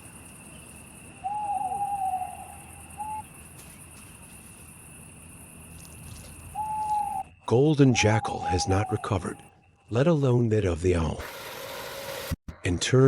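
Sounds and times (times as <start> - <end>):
high insect chirring: 0.0 - 9.9
owl hooting: 1.2 - 3.3, 6.5 - 9.6.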